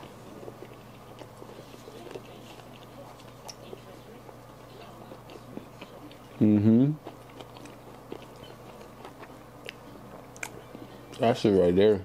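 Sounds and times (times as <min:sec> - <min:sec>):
person chewing food: 0:00.0 - 0:11.3
low steady hum: 0:00.0 - 0:12.0.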